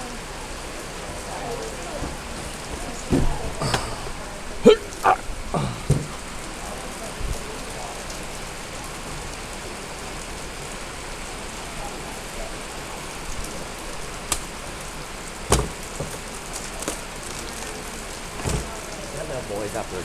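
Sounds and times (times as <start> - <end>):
steady rain: 0.0 - 20.0
sharp knocks: 2.0 - 6.3, 15.5 - 16.3.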